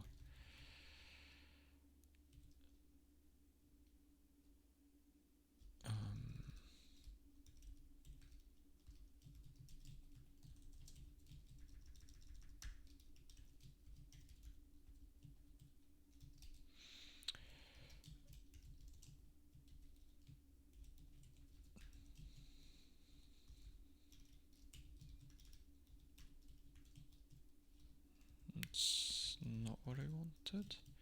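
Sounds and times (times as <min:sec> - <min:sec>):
keyboard typing: 0:02.3 - 0:02.8, 0:06.4 - 0:16.7, 0:17.7 - 0:22.7, 0:23.4 - 0:28.8, 0:30.3 - 0:31.0.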